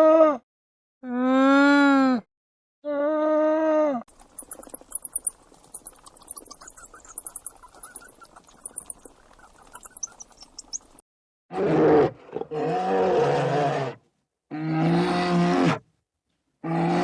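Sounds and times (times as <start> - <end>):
small animal squeaking and chirping: 4.1 - 11.0.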